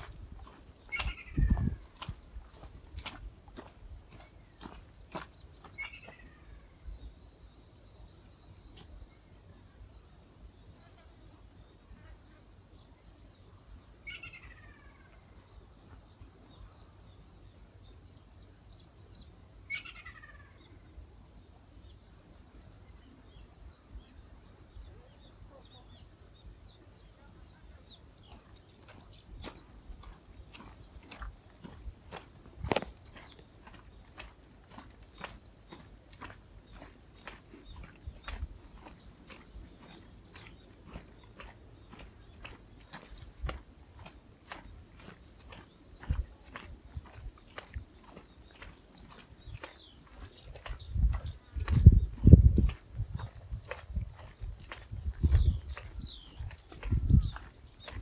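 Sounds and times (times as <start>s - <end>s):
faint ticks: 28.3s - 58.0s
insect buzzing: 28.3s - 58.0s.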